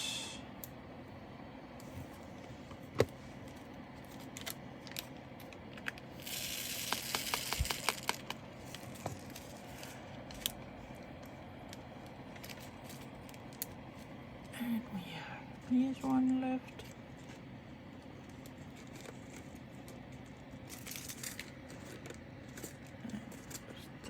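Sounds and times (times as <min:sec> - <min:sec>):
plastic beads rattling in a bag: 0:06.2 - 0:09.9, 0:20.6 - 0:22.7.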